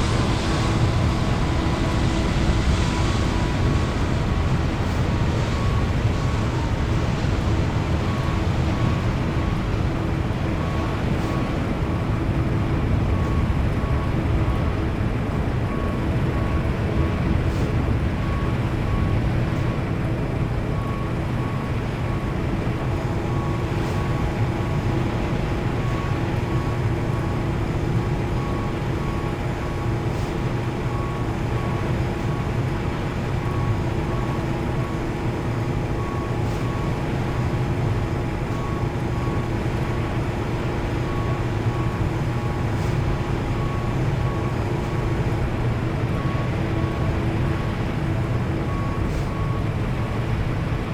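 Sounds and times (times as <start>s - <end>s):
aircraft cabin rumble while taxiing: 0.0s - 50.9s
faint pulsing high tone: 20.7s - 50.9s.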